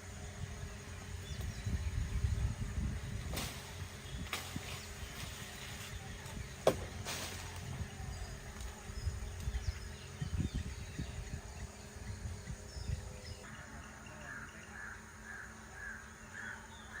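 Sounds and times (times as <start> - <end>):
bird calling: 3.3 - 17.0.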